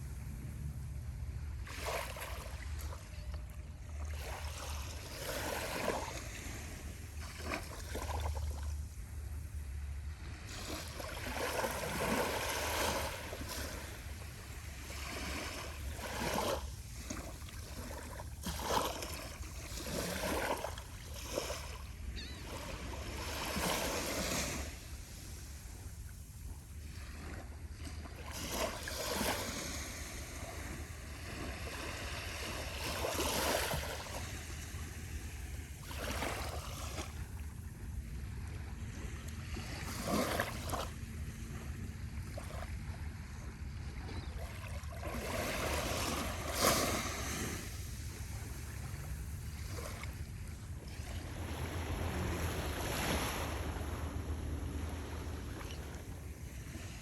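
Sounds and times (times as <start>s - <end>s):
steady low rumble: 0.0s - 1.8s, 47.6s - 57.0s
small waves splashing on beach: 0.0s - 57.0s.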